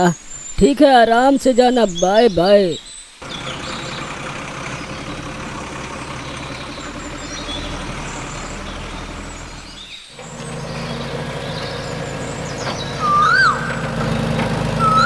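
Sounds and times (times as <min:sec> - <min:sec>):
birds chirping faintly: 0:00.0 - 0:15.0
mini tractor engine running: 0:03.2 - 0:15.0.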